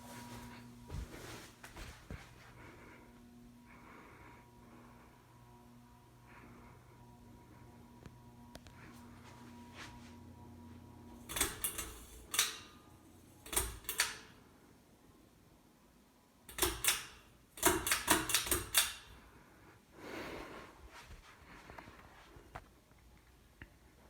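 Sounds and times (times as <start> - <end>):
ceiling fan electrical hum: 0.0 - 24.0
sharp clicks and knocks: 16.5 - 19.0.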